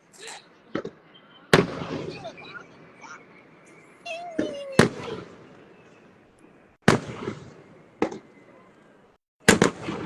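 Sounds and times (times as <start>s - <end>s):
fireworks bangs: 0.7s - 3.3s, 4.2s - 6.2s, 6.8s - 8.4s, 9.4s - 10.0s.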